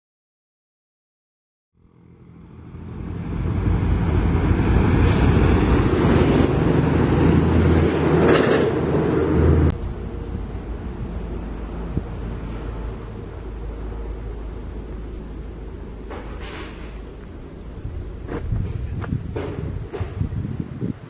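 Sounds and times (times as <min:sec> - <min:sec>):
diesel engine running: 0:01.8 - 0:20.1
brief hissing flares: 0:05.0 - 0:05.4, 0:16.2 - 0:17.0.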